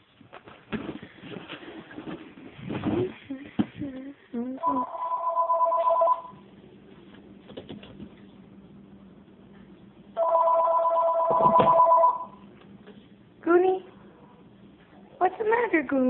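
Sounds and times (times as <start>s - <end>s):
telephone ringing: 4.7s - 6.4s, 10.2s - 12.4s.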